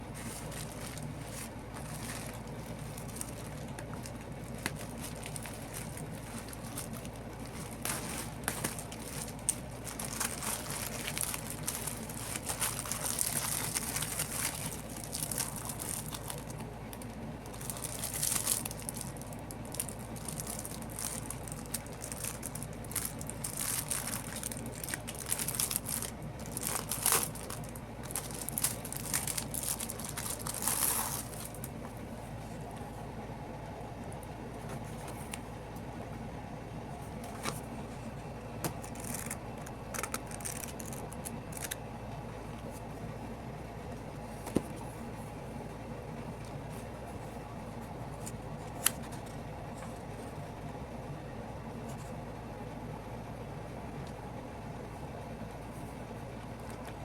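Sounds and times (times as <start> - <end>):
packaging crinkling and rustling: 0.0 - 32.0, 38.6 - 41.8
steady low hum: 0.0 - 57.0.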